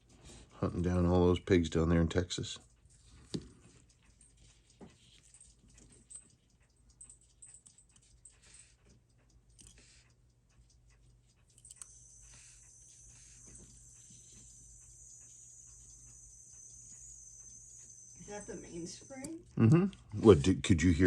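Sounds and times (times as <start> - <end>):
small clicks of tools: 3.1 - 18.2
high whine of watch gears spinning: 11.3 - 21.0.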